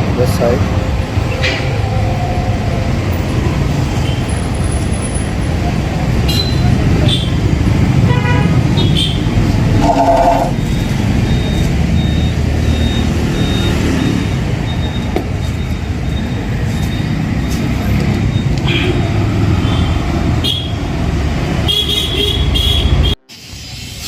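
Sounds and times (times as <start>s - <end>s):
road traffic rumble: 0.0s - 24.0s
vehicle horn toots: 8.1s - 10.6s, 21.7s - 23.3s.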